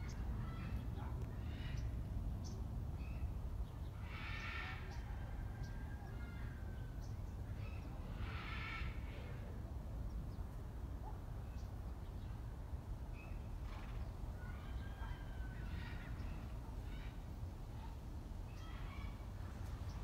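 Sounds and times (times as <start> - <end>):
bird harsh calls: 3.9 - 5.2, 7.6 - 9.2.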